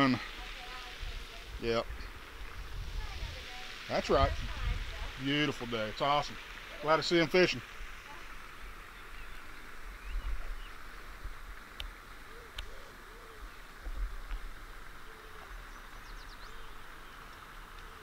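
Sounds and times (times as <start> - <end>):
steady hiss: 0.0 - 18.0
faint bird chirps: 8.9 - 10.9, 15.0 - 18.0.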